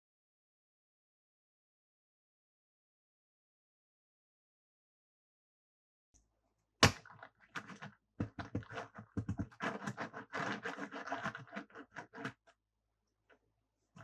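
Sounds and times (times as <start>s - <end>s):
plastic snap: 6.8s - 7.1s
plastic toys clicking and scraping: 7.3s - 12.5s.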